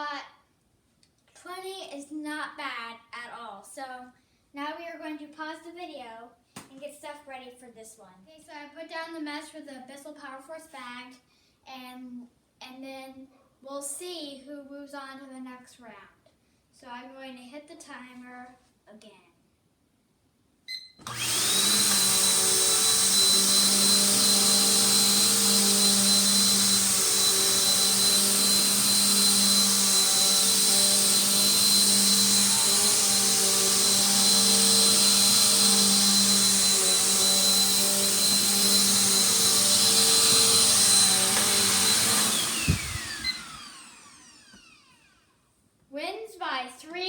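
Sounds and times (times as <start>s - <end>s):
vacuum cleaner motor whine: 21.0s - 45.3s.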